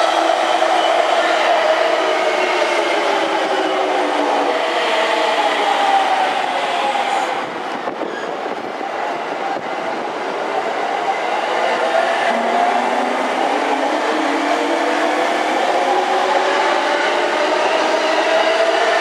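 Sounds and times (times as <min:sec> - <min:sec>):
commuter train pulling in: 0:00.0 - 0:19.0
electric train running past: 0:00.0 - 0:19.0.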